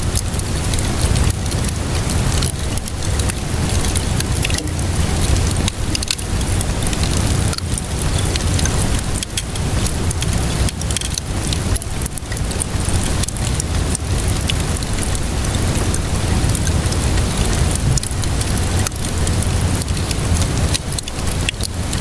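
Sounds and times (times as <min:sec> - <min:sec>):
rainfall hiss: 0:00.0 - 0:22.0
steady low rumble: 0:00.0 - 0:22.0
wood fire crackling and popping: 0:00.0 - 0:22.0.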